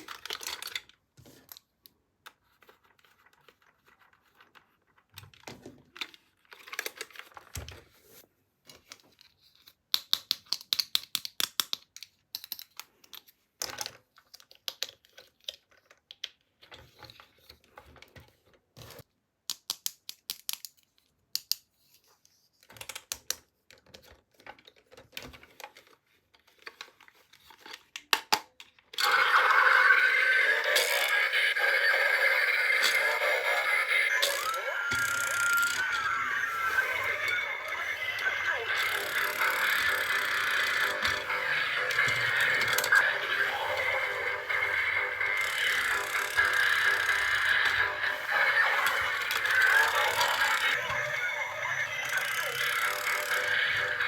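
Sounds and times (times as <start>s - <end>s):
plastic parts clicking: 0.0s - 7.7s, 8.7s - 17.2s.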